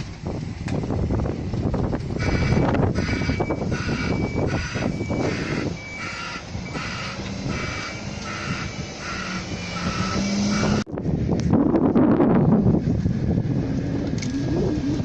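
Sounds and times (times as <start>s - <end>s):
truck engine revving: 0.0s - 10.9s, 11.7s - 15.0s
two-tone electronic warning beeper: 2.2s - 10.8s.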